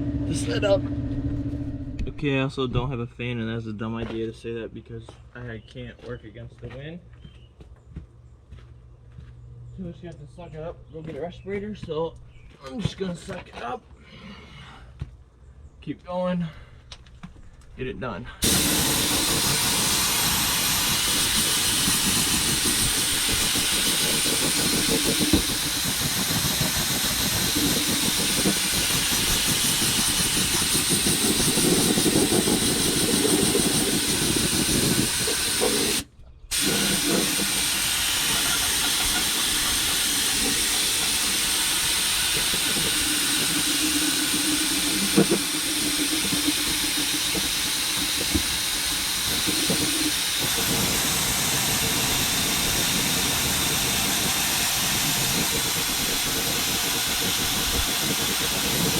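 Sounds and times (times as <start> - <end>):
spray gun hissing: 18.4 - 58.9.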